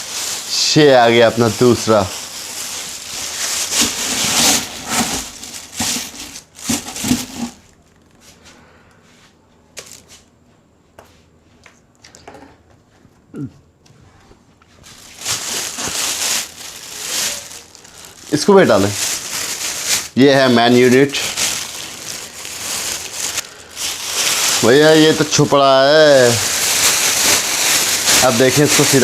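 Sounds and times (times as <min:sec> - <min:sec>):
packaging rustling and crinkling: 0:00.0 - 0:08.2, 0:14.8 - 0:29.0.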